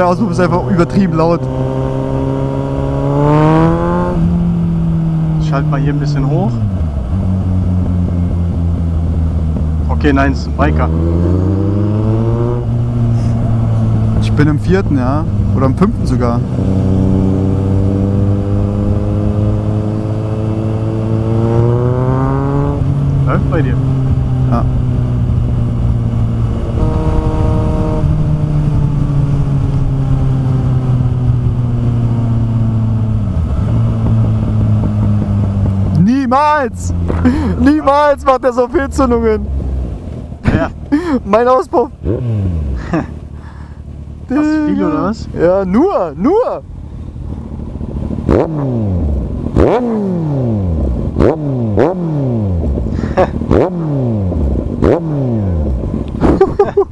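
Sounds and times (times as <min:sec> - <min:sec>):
motorcycle engine running: 0:00.0 - 0:56.9
wind noise: 0:10.9 - 0:38.1
exhaust crack: 0:31.2 - 0:56.9.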